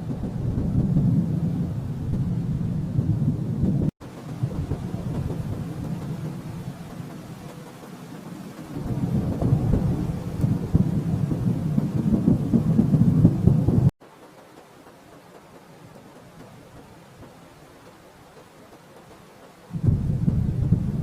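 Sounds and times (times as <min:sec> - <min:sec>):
rolling thunder rumble: 0:00.0 - 0:13.9, 0:19.7 - 0:21.0.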